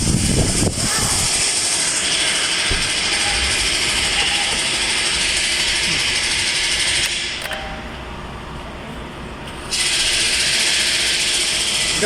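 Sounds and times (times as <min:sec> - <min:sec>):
car engine whirring: 0:00.0 - 0:11.7
click: 0:07.0 - 0:07.8.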